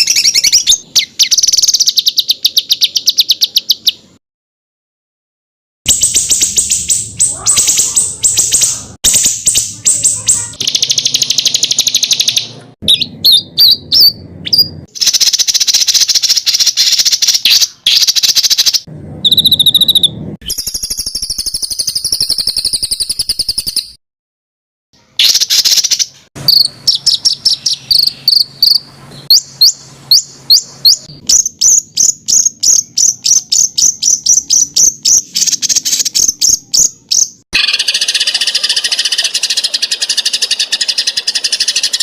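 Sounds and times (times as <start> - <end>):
songbird harsh rattling trills: 5.9 - 12.4, 37.6 - 42.0
bird whistled phrase: 5.9 - 18.6.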